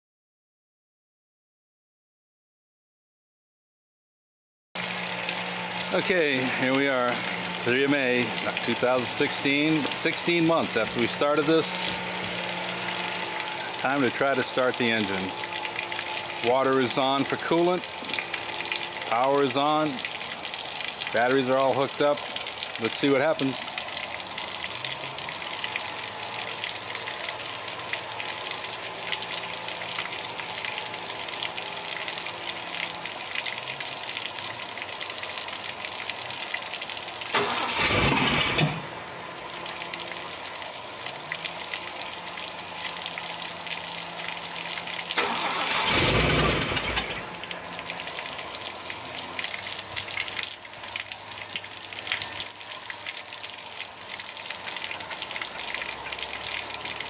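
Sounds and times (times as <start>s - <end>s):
water hissing from a hose: 4.8s - 57.0s
car engine cranking to start: 37.3s - 39.0s, 45.2s - 47.4s.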